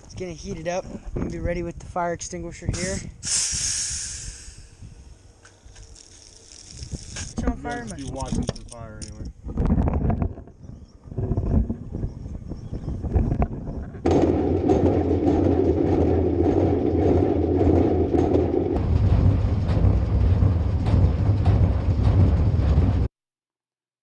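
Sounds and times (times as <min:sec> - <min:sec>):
irregular rough noise: 0:02.8 - 0:12.0, 0:13.0 - 0:23.1
tractor engine running: 0:13.1 - 0:23.1.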